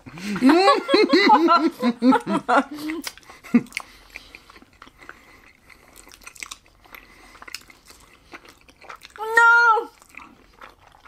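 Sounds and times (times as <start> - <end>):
chewing sticky food: 1.7 - 11.0.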